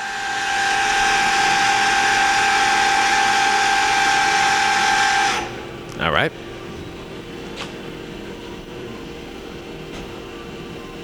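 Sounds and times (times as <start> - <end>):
machine spindle whining: 0.0 - 5.8.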